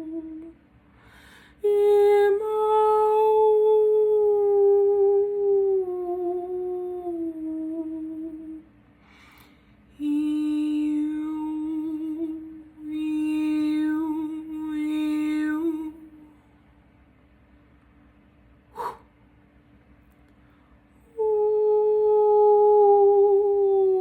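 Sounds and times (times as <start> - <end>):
woman singing wordless long notes: 0.0 - 0.6, 1.2 - 8.7, 10.0 - 16.4, 21.0 - 24.0
woman breathing in: 0.9 - 1.6, 9.0 - 9.9, 18.7 - 19.1.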